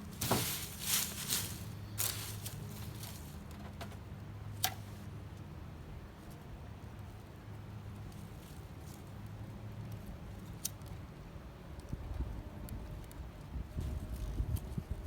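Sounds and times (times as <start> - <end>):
dry leaves rustling: 0.0 - 3.4.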